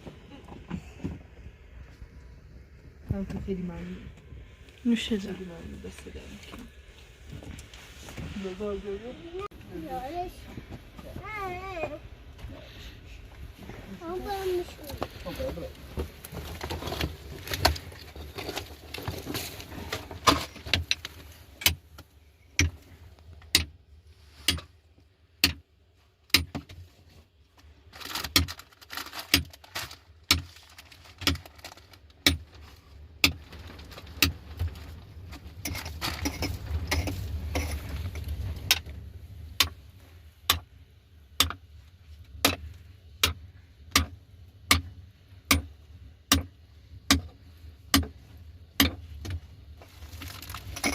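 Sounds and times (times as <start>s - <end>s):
rustling: 0.0s - 23.4s, 26.8s - 40.4s, 49.0s - 50.9s.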